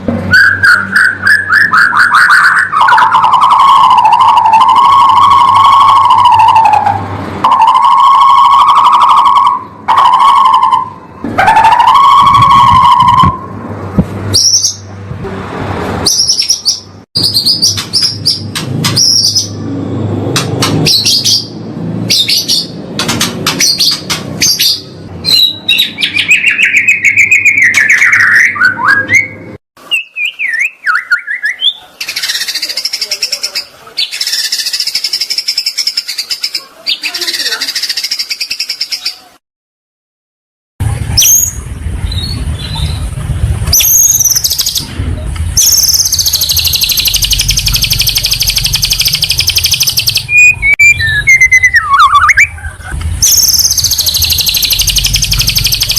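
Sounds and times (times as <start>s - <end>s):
songbird singing: 0.3s - 13.4s, 16.1s - 19.6s, 20.6s - 39.3s, 41.2s - 44.9s, 45.6s - 55.9s
high-pitched chattering trill: 45.6s - 55.9s.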